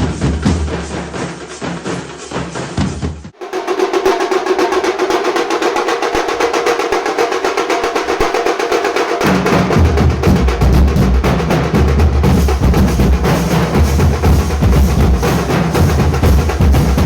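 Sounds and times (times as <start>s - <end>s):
fast high drum roll: 0.0s - 17.0s
deep bass drum beats: 9.2s - 17.0s.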